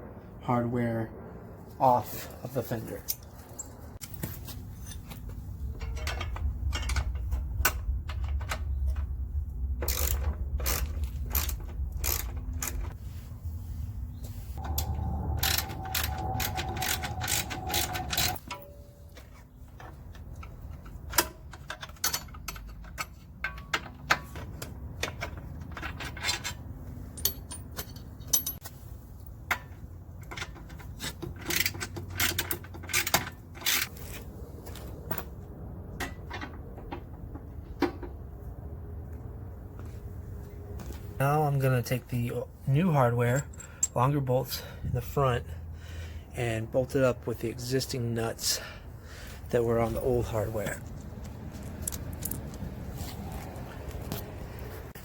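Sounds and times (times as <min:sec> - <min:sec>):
low hum: 0:00.0 - 0:19.8.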